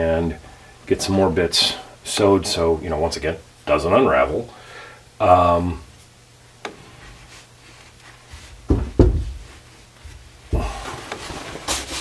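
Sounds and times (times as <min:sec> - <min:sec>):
rustling and shuffling: 0:05.8 - 0:12.0
light knocks and clunks: 0:08.6 - 0:10.8.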